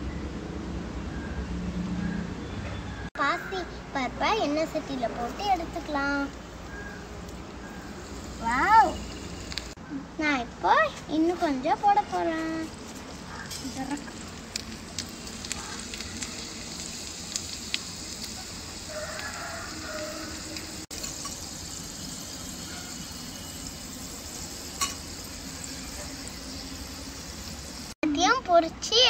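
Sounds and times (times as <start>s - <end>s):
food sizzling in hot oil: 6.9s - 9.8s, 11.8s - 28.0s.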